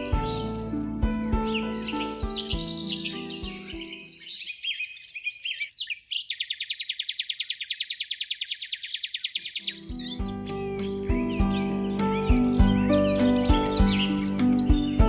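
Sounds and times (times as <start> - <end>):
gentle background music: 0.0 - 4.5, 9.6 - 15.0
bird trilling: 0.0 - 15.0
songbirds chirping: 0.0 - 15.0.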